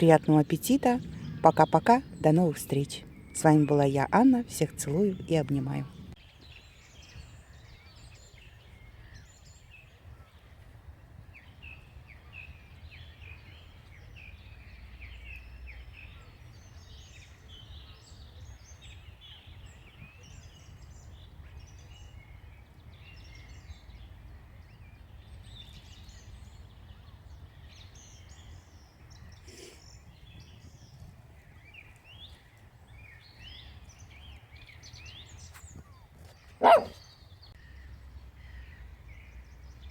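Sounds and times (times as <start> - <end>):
low outdoor rumble: 0.0 - 6.2
songbirds chirping: 0.0 - 39.9.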